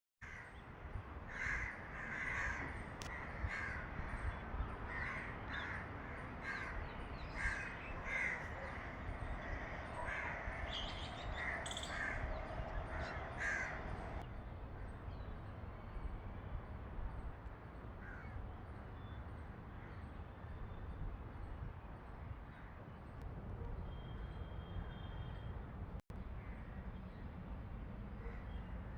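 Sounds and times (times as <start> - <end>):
crows cawing: 0.2 - 0.5, 1.3 - 4.2, 4.9 - 14.2, 18.0 - 18.4.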